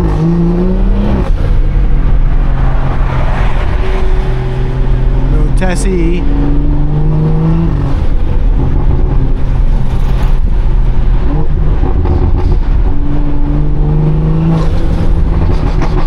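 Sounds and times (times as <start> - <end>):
car exhaust while driving: 0.0 - 16.0.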